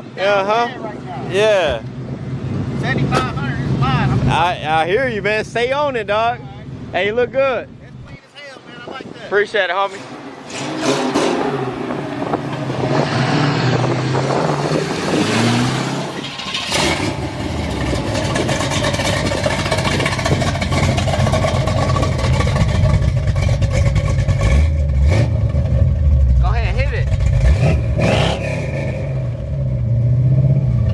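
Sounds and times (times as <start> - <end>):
car engine revving: 9.9 - 30.9.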